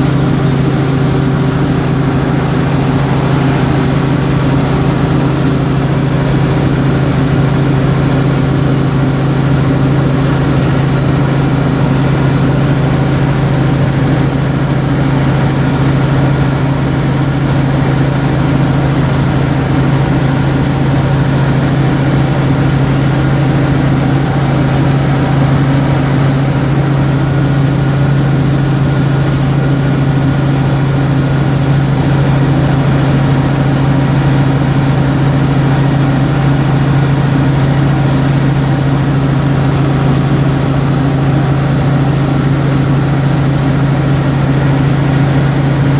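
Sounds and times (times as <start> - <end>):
car engine and road noise: 17.7 - 44.8.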